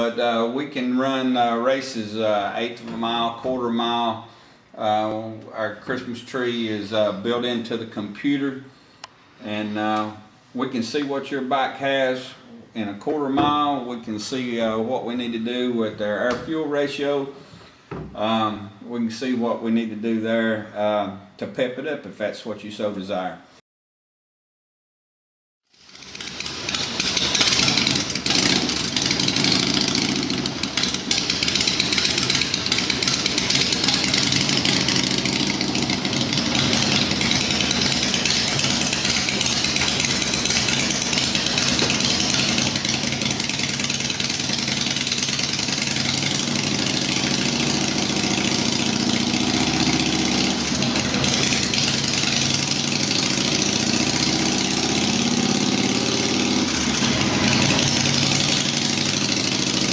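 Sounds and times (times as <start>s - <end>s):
motorcycle engine on dynamometer: 25.7s - 59.9s.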